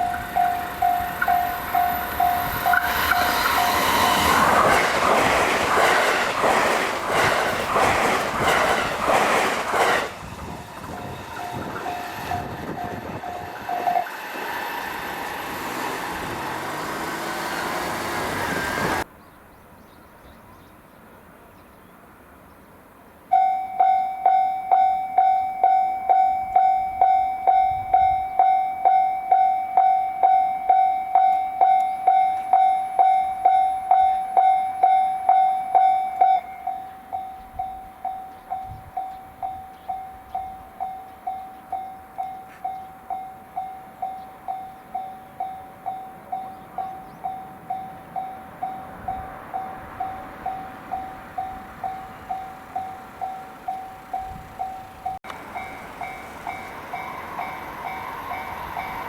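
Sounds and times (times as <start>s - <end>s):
level crossing warning bell: 0.0s - 9.9s, 10.8s - 14.1s, 23.3s - 59.0s
train passing at high speed: 0.0s - 19.1s, 24.7s - 59.0s
train wheels clattering on rails: 0.0s - 19.1s.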